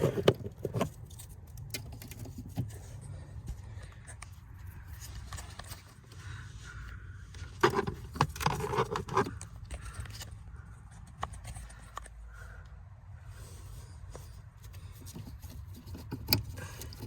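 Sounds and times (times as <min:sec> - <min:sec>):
tool scraping and clicking on fastener: 0:00.0 - 0:02.9, 0:07.4 - 0:10.3, 0:14.6 - 0:17.0.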